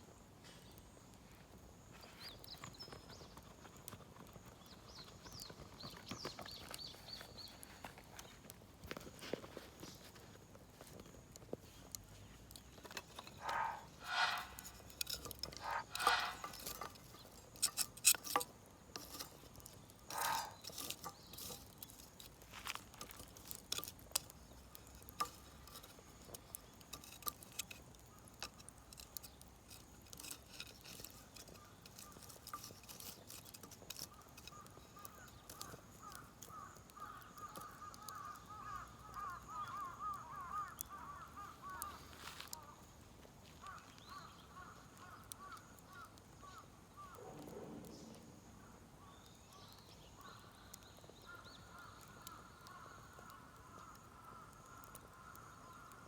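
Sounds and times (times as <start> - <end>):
crows cawing: 13.2 - 16.8, 20.1 - 20.9, 34.2 - 42.8, 43.6 - 47.2, 51.3 - 56.0.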